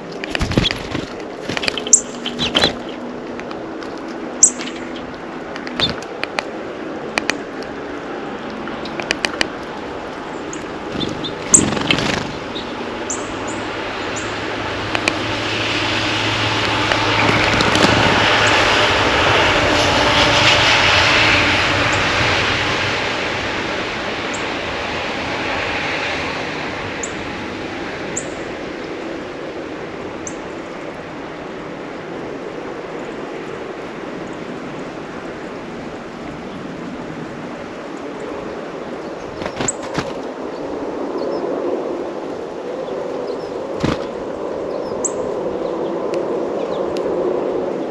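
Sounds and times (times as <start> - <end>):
airplane engine: 0.0 - 47.9
sharp clicks or wing flutters: 0.1 - 6.5, 8.7 - 9.7, 10.6 - 12.7, 16.6 - 18.6, 39.3 - 40.3, 43.7 - 44.2.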